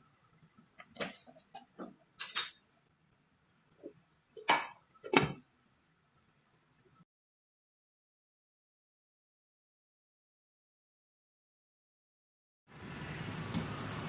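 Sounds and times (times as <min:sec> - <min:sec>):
kitchen utensils clinking: 0:01.0 - 0:02.7.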